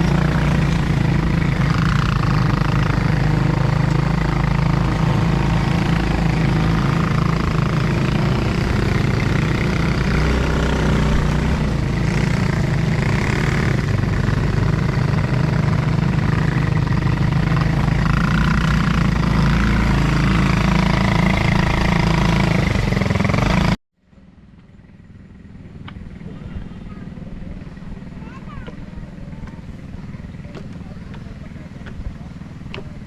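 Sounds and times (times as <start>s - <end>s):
atv engine droning: 0.0s - 33.0s.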